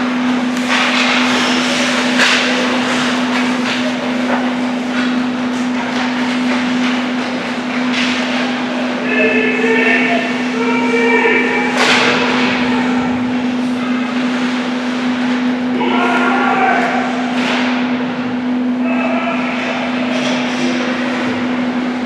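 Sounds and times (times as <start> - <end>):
steady hum: 0.0 - 22.0
sticks and puck clacking: 0.6 - 8.4.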